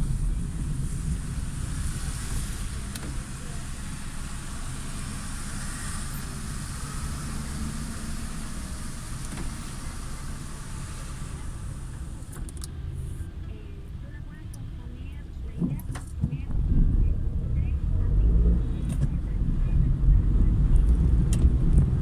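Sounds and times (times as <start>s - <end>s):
tyres hissing on wet pavement: 0.0s - 13.2s
car engine and road rumble: 0.0s - 22.0s.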